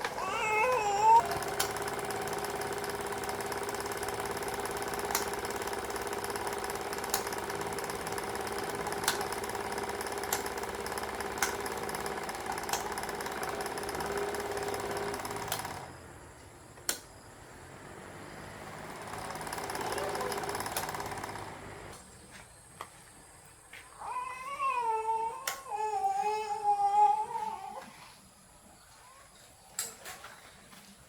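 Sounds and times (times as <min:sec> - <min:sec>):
small electric motor humming: 0:00.0 - 0:16.0
sharp clicks: 0:05.1 - 0:05.4, 0:16.8 - 0:17.1, 0:25.4 - 0:25.7.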